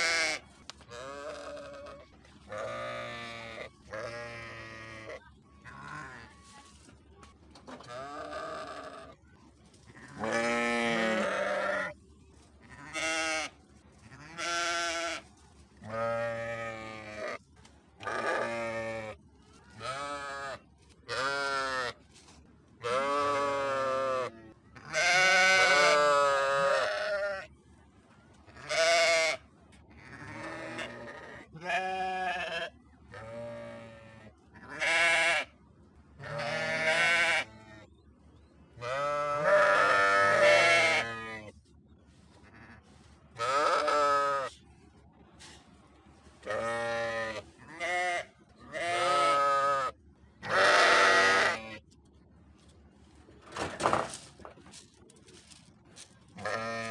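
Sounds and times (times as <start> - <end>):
sheep bleating: 0.0 - 6.3, 7.8 - 9.2, 10.0 - 12.0, 22.8 - 27.5, 28.6 - 29.4, 30.0 - 35.5, 36.2 - 37.6, 38.8 - 41.4, 43.4 - 44.5, 46.5 - 51.8, 56.4 - 56.9.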